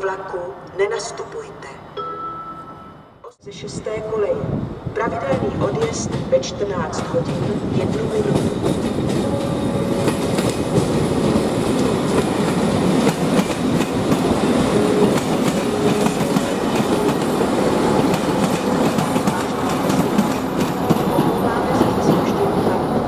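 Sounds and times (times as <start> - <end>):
diesel locomotive passing: 3.5 - 23.0
train wheels clattering over joints: 5.2 - 22.3.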